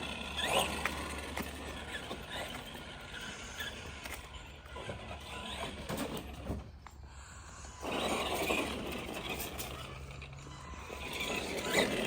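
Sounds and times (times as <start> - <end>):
electric motor whining: 7.5 - 12.0.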